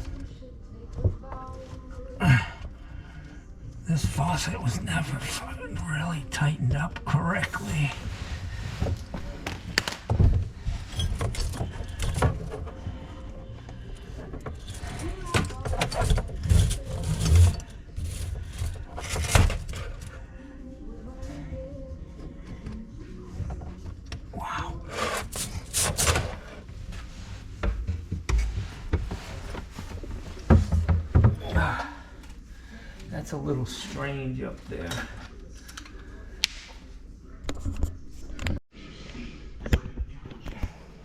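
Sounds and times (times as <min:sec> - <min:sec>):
rubbing and scraping: 0:03.9 - 0:20.2, 0:24.8 - 0:31.7
knocks and thumps of tools: 0:27.6 - 0:31.8.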